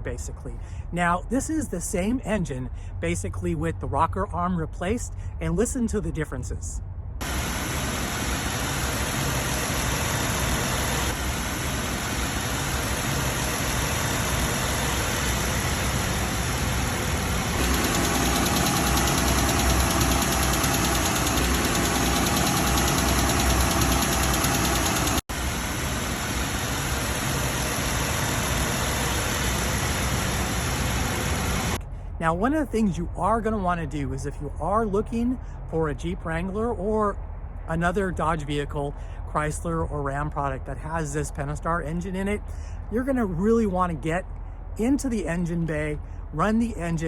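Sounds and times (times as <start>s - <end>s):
car engine running: 7.2s - 31.8s.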